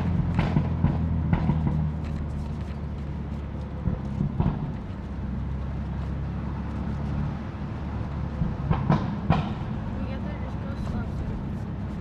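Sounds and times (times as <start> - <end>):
car engine running in traffic: 0.0 - 12.0
sharp knocks: 8.4 - 9.8.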